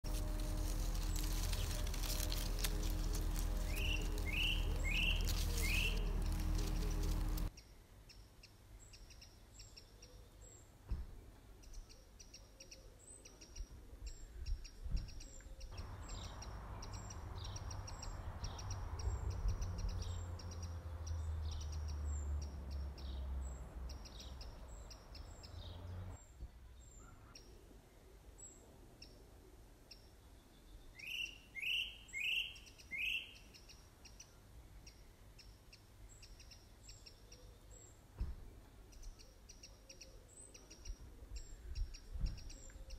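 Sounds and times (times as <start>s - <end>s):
rushing noise with low rumble: 0.0s - 7.5s
small birds chirping: 0.0s - 42.9s
loud bird calls: 0.2s - 7.5s, 31.0s - 33.8s.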